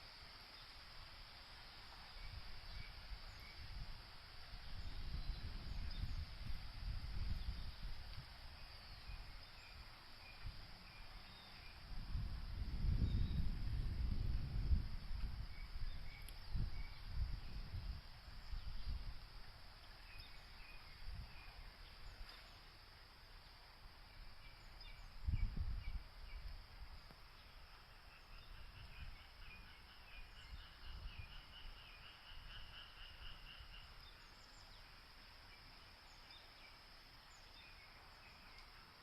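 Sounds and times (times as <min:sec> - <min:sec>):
wind gusts: 0:00.0 - 0:39.0
bird chirping: 0:08.6 - 0:11.8, 0:19.8 - 0:22.6.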